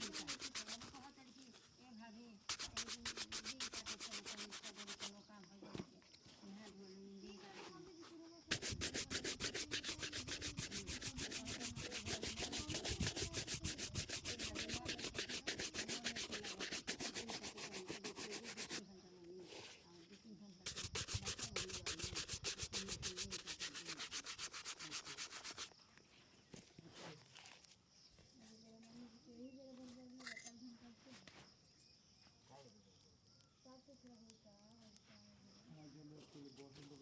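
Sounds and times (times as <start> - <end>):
shoe being buffed: 0.0 - 0.9, 2.5 - 5.1, 8.5 - 18.8, 20.7 - 25.7.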